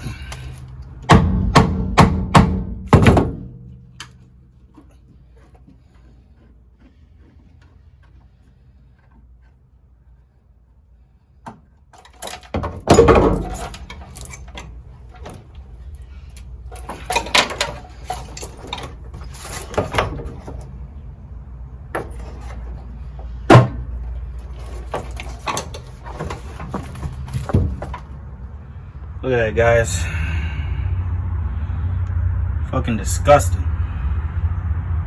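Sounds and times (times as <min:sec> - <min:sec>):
knocks and clunks of car parts: 0:00.0 - 0:09.5, 0:11.4 - 0:21.0, 0:21.7 - 0:28.4
loud thump: 0:01.1 - 0:03.9.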